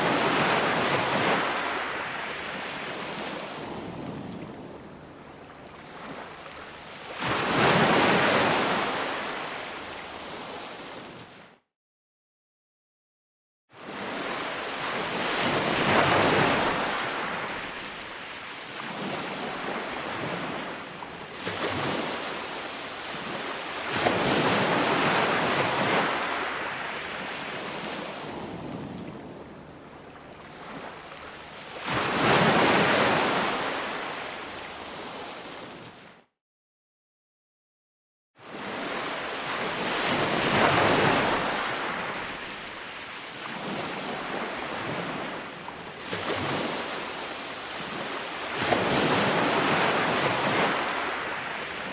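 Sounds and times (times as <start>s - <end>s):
ocean waves breaking: 0.0s - 11.4s, 13.8s - 36.1s, 38.5s - 51.9s
wind on microphone: 2.4s - 6.5s, 27.1s - 31.1s.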